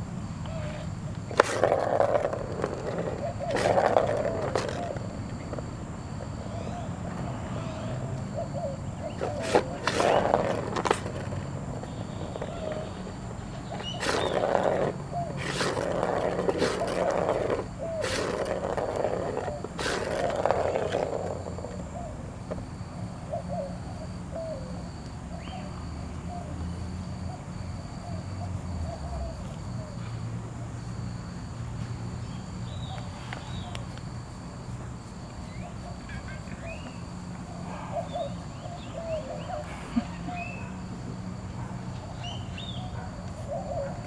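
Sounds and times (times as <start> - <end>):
cat growling: 0.5 - 5.5, 8.7 - 22.0.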